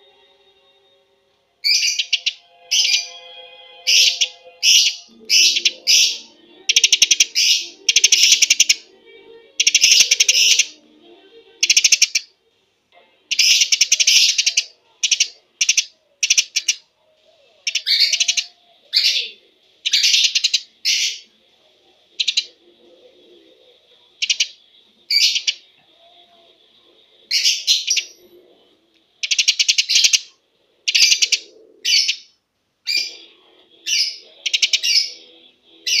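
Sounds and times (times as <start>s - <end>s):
faint high tone: 0.0s - 16.2s, 20.7s - 29.0s
sparrow chirping rapidly: 1.7s - 3.1s, 3.9s - 8.8s, 9.6s - 10.7s, 11.6s - 12.2s, 13.3s - 16.8s, 19.9s - 21.2s, 24.2s - 24.5s, 25.1s - 25.6s, 29.2s - 30.3s, 30.9s - 32.3s.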